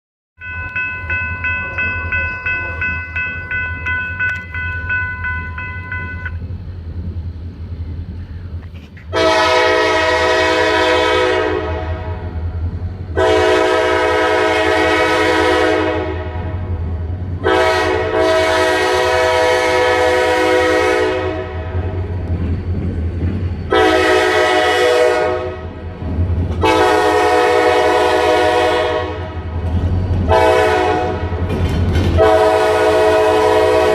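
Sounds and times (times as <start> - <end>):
bell ringing rapidly: 0.4 - 6.3
locomotive air horn blasts: 9.1 - 12.3, 13.1 - 16.7, 17.4 - 22.0, 23.7 - 25.8, 26.6 - 29.5, 30.3 - 31.4, 32.2 - 33.9.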